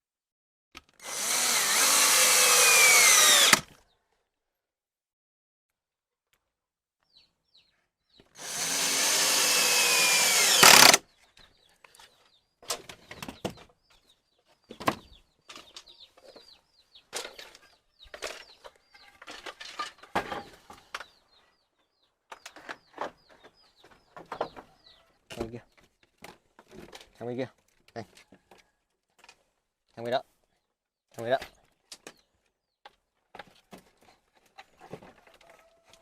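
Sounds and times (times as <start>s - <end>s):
power drill running: 1.0s - 3.6s, 8.4s - 11.0s.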